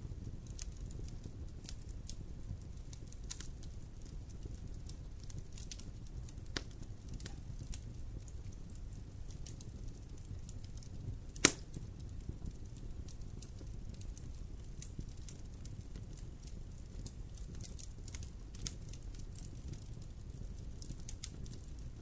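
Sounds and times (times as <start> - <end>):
wood fire crackling: 0.0 - 22.0
loud pop from fire: 11.3 - 11.9.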